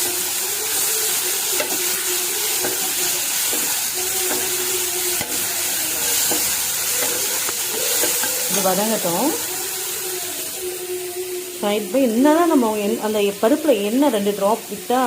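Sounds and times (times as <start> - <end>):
vegetables sizzling in oil: 0.0 - 15.0
spoon stirring in pan: 0.2 - 10.4.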